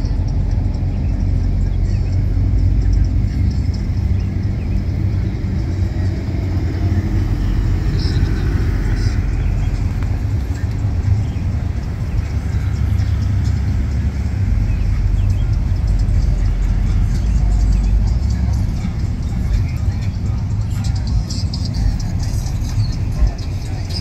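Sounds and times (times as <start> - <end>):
cars driving slowly past: 0.0 - 24.0.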